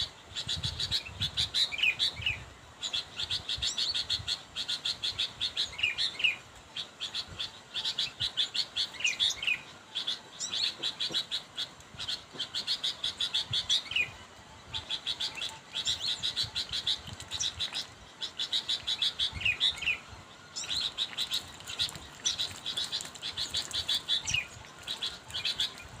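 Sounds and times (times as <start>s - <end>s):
bird chattering calls: 7.0s - 14.1s, 20.6s - 25.8s.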